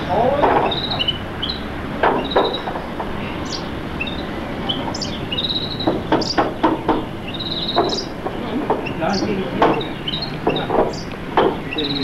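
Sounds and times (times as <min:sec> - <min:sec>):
small birds chirping: 0:00.0 - 0:12.0
sharp knocks: 0:00.1 - 0:01.2, 0:01.9 - 0:03.7, 0:05.7 - 0:12.0.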